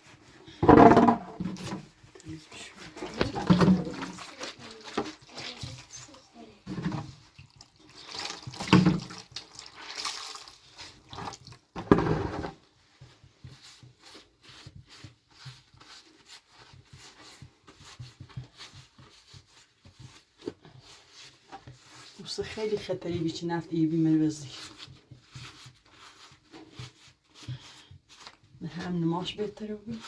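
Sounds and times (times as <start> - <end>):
water splashing and dripping: 7.4 - 10.6.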